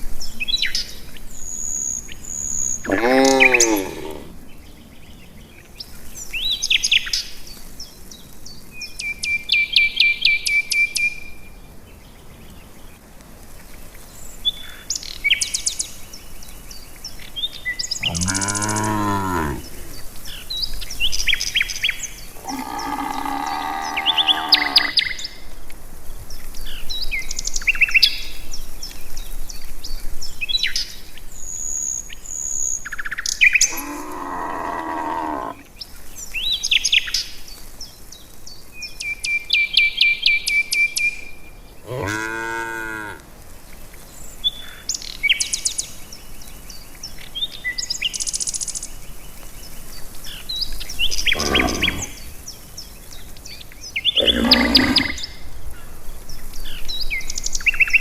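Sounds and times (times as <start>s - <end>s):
cattle mooing: 2.9s - 4.4s, 18.0s - 19.8s, 22.4s - 25.0s, 33.7s - 35.6s, 41.9s - 43.2s, 51.3s - 52.2s, 54.2s - 55.3s
birds chirping and whistling: 17.8s - 19.5s.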